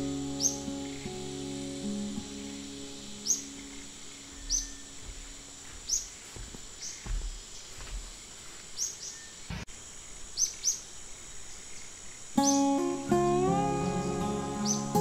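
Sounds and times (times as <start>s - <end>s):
bird chirping: 0.0s - 7.8s, 8.7s - 9.6s, 10.3s - 15.0s
high-pitched insect drone: 0.0s - 8.0s, 10.0s - 15.0s
faint thumps on microphone: 4.4s - 8.2s.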